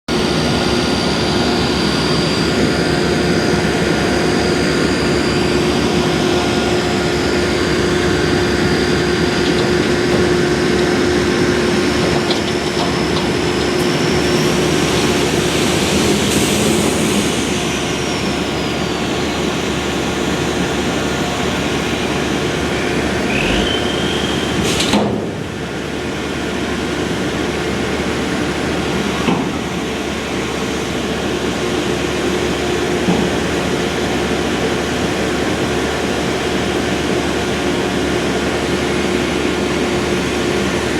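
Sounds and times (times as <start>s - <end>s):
high whine: 0.1s - 27.0s
dump truck engine: 0.1s - 40.9s.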